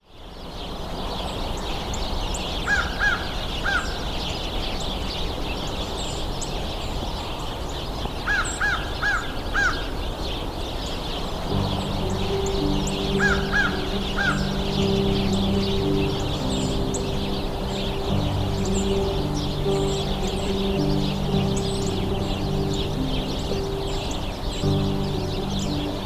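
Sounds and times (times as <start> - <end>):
birds chipping and twittering: 0.2 - 26.0
soft music: 11.3 - 26.0
bird giving clear arched calls: 11.5 - 26.0.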